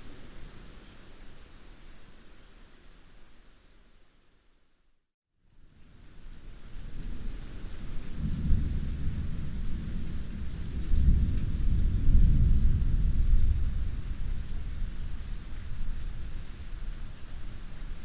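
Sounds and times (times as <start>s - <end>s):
heavy rain falling: 5.8s - 18.0s
thunder rumbling: 6.8s - 18.0s.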